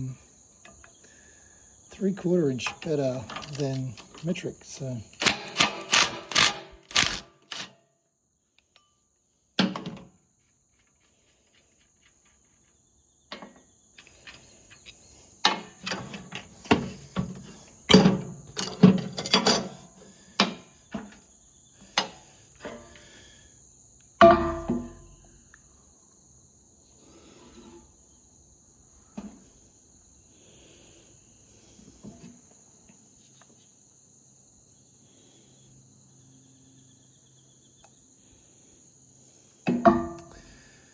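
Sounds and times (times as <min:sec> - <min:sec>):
cricket chirring: 0:00.0 - 0:40.9
metallic clinks of tools: 0:02.5 - 0:07.7, 0:17.9 - 0:19.9.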